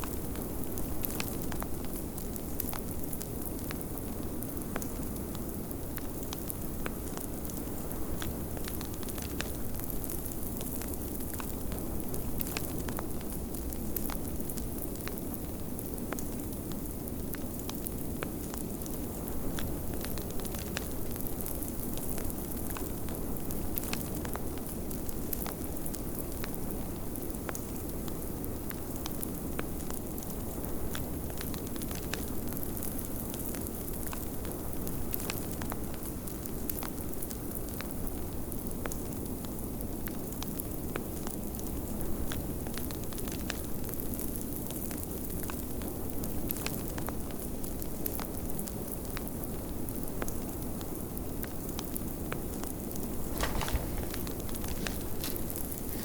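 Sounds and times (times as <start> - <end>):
wood fire crackling: 52.9 - 56.0.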